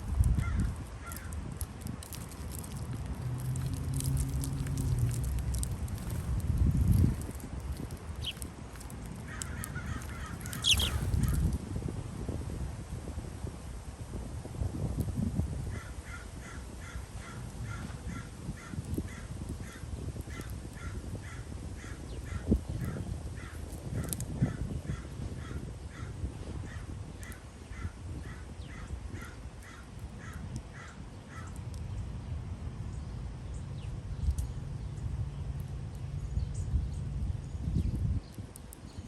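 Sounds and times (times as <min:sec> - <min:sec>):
steady low rumble: 0:00.0 - 0:12.2
bird calling short notes: 0:10.2 - 0:11.4.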